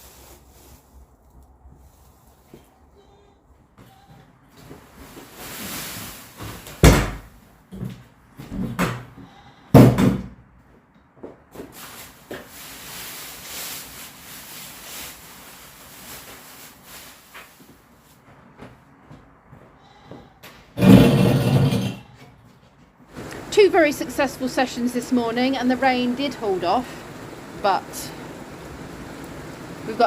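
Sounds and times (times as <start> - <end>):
sheep bleating: 9.2 - 9.8, 19.8 - 20.4
knocks: 9.8 - 10.4
steady rustling: 20.8 - 30.0.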